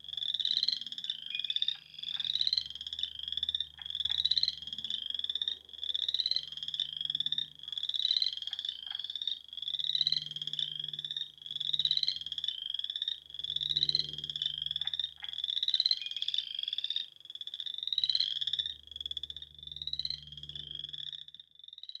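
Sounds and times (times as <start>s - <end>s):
frogs calling in trills: 0.0s - 22.0s.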